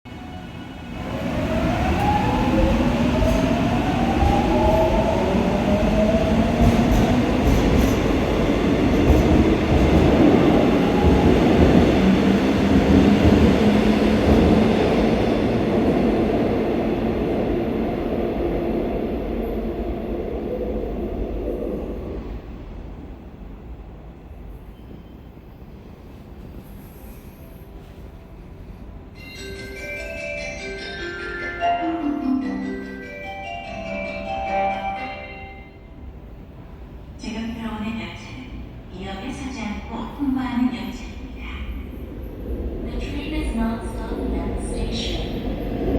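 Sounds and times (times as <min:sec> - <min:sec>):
train wheels rumbling on rails: 0:01.0 - 0:18.6.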